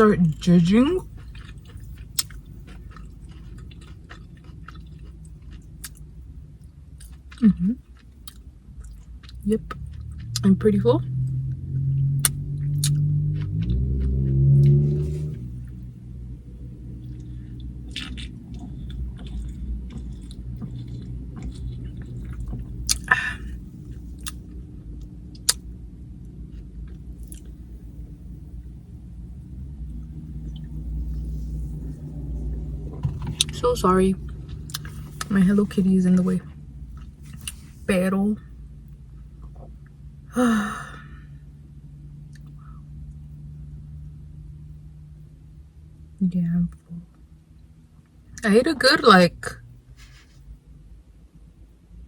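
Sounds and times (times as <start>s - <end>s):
low steady hum: 0.0s - 52.0s
chewing crunchy chips: 0.3s - 10.6s, 12.2s - 15.9s, 16.7s - 24.6s, 26.5s - 33.6s, 34.2s - 35.4s
wet mouth clicks: 12.2s - 13.6s.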